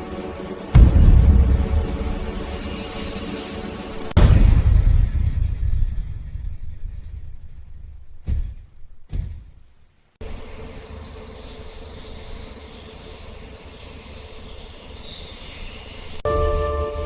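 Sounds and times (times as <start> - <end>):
music: 0.0 - 4.2, 16.2 - 17.0
low rumble: 0.8 - 8.2
faint high chirping: 10.2 - 17.0.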